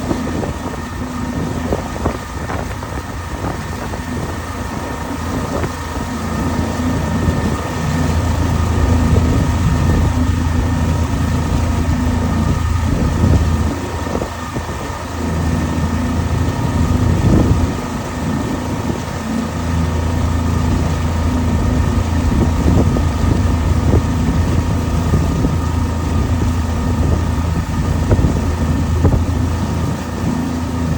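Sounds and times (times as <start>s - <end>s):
engine running: 0.0s - 30.9s.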